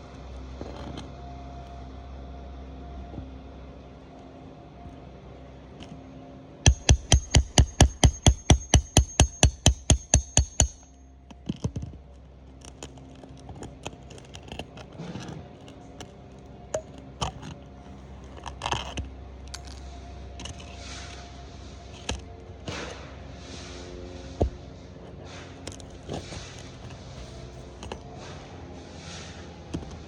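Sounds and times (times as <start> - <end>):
ringing hammer blows: 6.7 - 11.0
light clicks and scrapes: 11.3 - 30.0.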